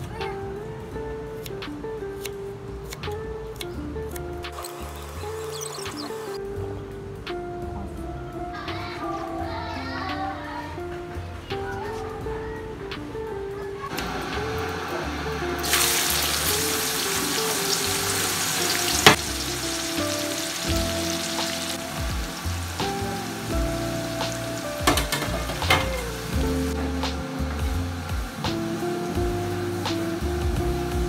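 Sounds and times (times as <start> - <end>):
onions sizzling in hot oil: 14.0 - 31.0.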